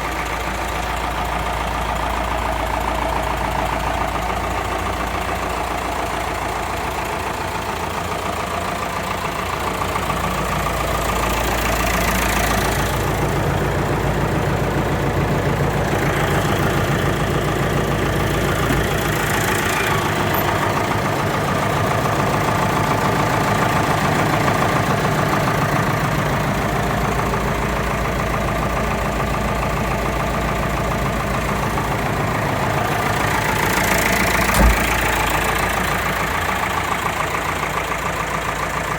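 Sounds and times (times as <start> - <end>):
tractor diesel engine idling: 0.0 - 38.9
short thump: 34.5 - 35.0.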